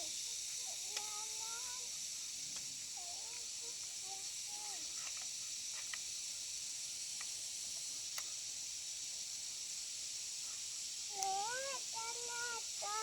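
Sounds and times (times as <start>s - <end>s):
high-pitched hiss: 0.0s - 13.0s
faint clicks: 0.9s - 1.2s, 8.1s - 8.3s, 11.1s - 11.6s.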